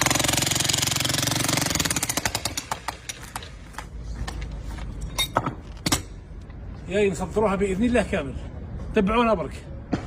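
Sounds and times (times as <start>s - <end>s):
jackhammer hammering: 0.0s - 3.9s.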